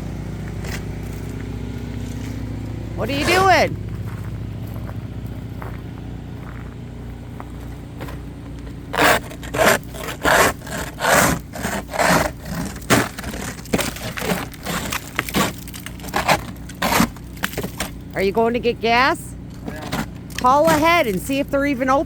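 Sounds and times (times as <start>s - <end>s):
steady low hum: 0.0s - 22.0s
hard scraping strokes: 2.0s - 3.7s, 8.8s - 17.9s.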